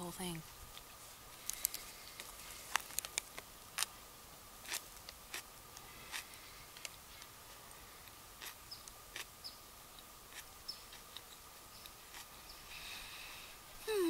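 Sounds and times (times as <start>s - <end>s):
chewing with wet mouth clicks: 9.9s - 12.3s.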